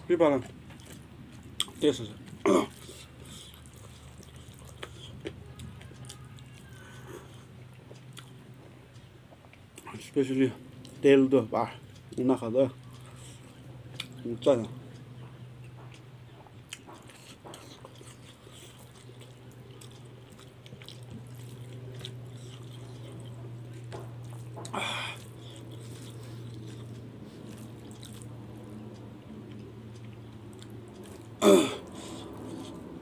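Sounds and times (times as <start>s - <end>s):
person chewing food: 0.2s - 11.0s, 11.8s - 33.0s
low hum: 2.2s - 33.0s
breathy burst: 24.7s - 25.2s.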